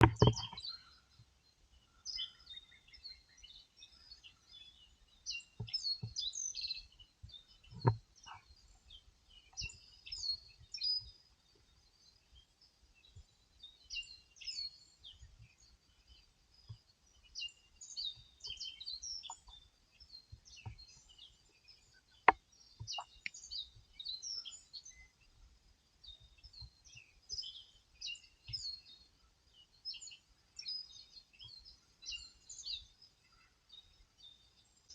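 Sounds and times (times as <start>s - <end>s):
birds singing and chirping: 0.0s - 34.9s.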